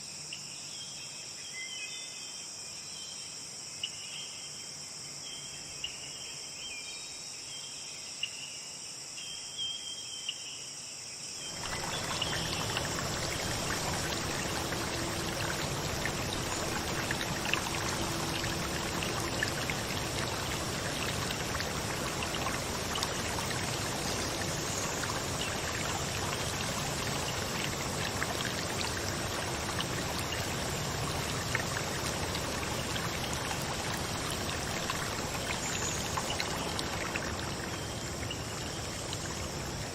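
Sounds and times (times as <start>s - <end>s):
insects chirring: 8.4s - 39.9s
running water rushing: 11.5s - 39.9s.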